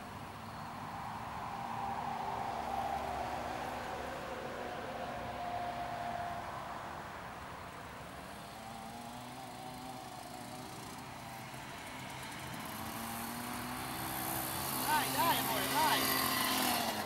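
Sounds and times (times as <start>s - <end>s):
small motorbike engine running: 8.2s - 17.0s.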